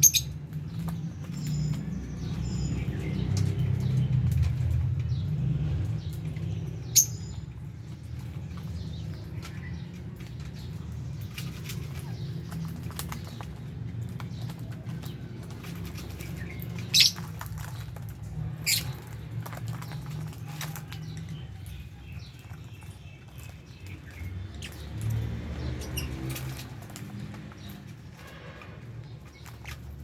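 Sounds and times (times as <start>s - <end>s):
birds pecking and rustling: 0.0s - 30.0s
lovebirds chirping: 0.0s - 30.0s.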